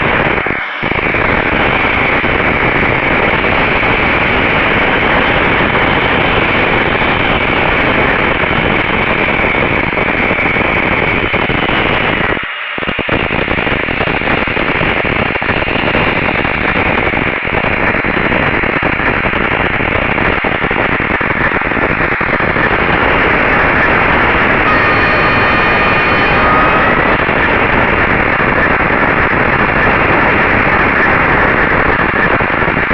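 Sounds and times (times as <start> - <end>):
loud steady hiss: 0.0 - 32.9
faint steady tones: 22.4 - 32.5.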